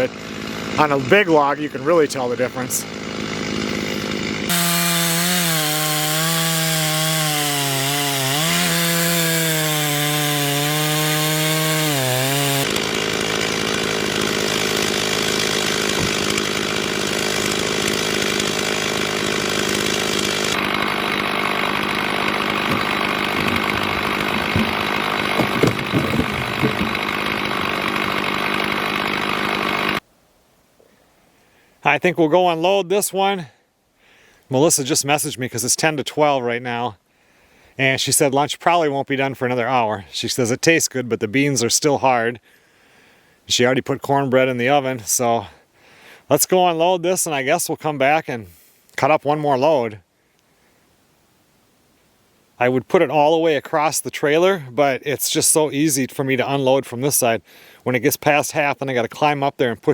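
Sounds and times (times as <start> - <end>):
chainsaw running at high revs: 0.0 - 30.0
chainsaw cutting logs: 0.0 - 30.1, 55.2 - 58.7.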